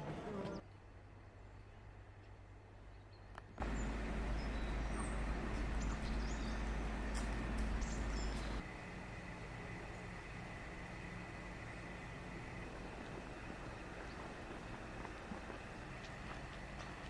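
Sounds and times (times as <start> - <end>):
bird chirps: 2.9 - 8.6
low rumble: 3.6 - 16.3.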